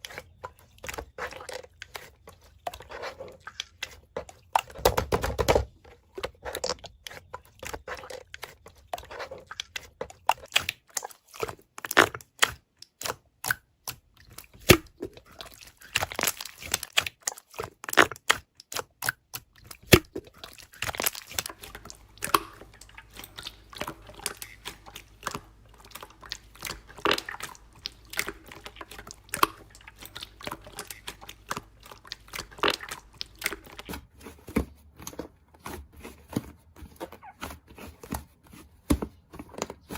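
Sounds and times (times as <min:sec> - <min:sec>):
slime crackling and popping: 0:10.4 - 0:34.1.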